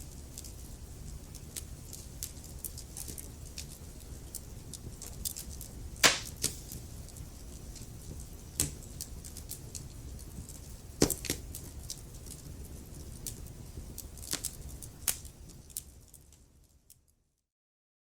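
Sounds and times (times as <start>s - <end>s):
low rumble of flames: 0.0s - 17.1s
wood fire crackling and popping: 0.0s - 17.1s.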